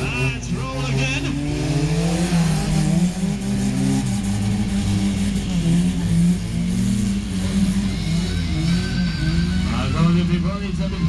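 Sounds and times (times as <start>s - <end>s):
vehicle engines revving: 0.0s - 11.0s.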